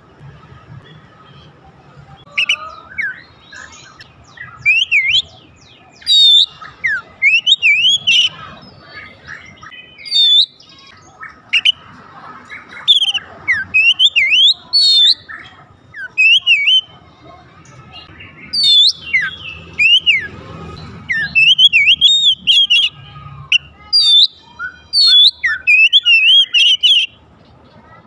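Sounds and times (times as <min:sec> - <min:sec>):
bird singing whistled phrases: 0:02.3 - 0:08.5, 0:09.3 - 0:11.8, 0:12.7 - 0:16.9, 0:18.0 - 0:20.3, 0:21.0 - 0:27.2.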